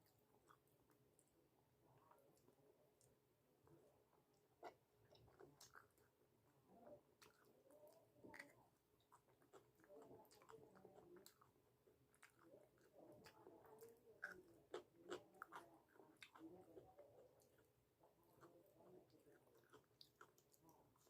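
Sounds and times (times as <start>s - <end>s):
faint close-up chewing: 0.0s - 21.0s.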